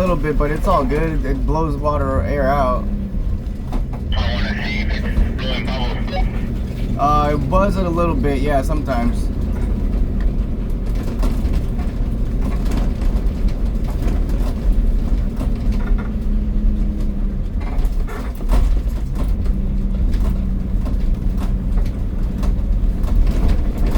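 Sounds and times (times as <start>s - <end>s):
van engine rumble: 0.0s - 23.9s.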